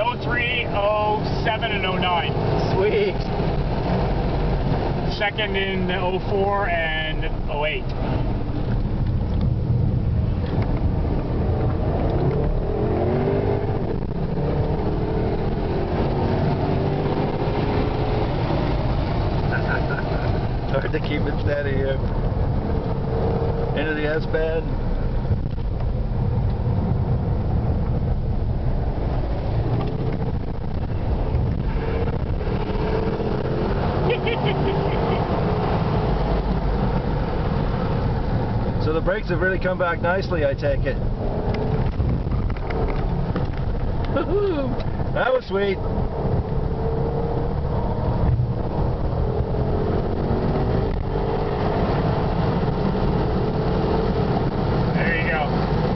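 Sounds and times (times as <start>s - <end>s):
car engine rumble from inside: 0.0s - 55.9s
road noise: 0.0s - 55.9s.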